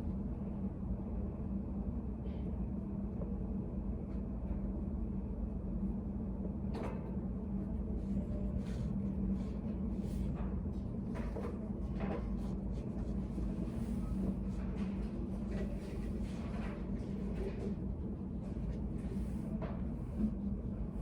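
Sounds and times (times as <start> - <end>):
low room hum: 0.0 - 21.0
faint knocks and rustles: 8.0 - 20.4.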